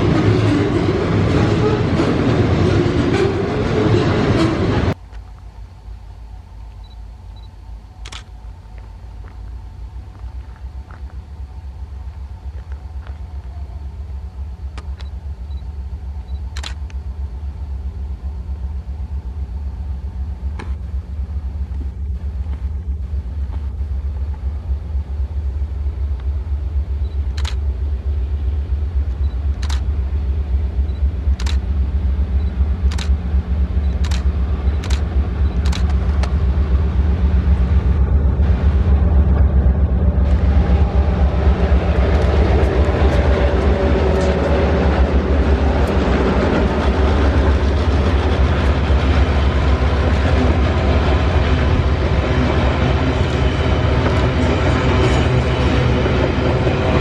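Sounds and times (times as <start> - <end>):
train rumble: 0.0 - 57.0
sharp clicks of train wheels: 14.6 - 17.2, 26.0 - 28.2, 28.8 - 37.9, 40.2 - 57.0.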